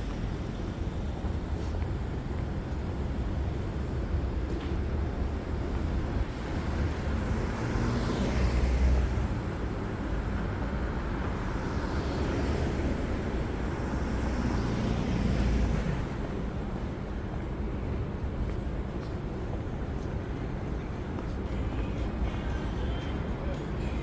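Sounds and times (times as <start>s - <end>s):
vehicles passing close: 0.0s - 17.2s
street traffic rumble: 0.0s - 24.0s.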